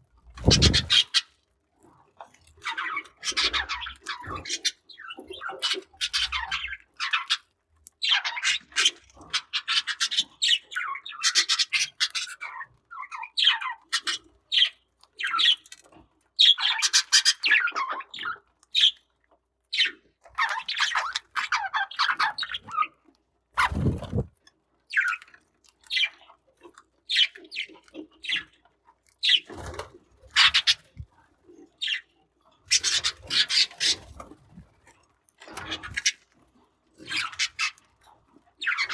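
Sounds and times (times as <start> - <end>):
budgerigars chirping: 0.4 - 1.2, 32.7 - 34.0.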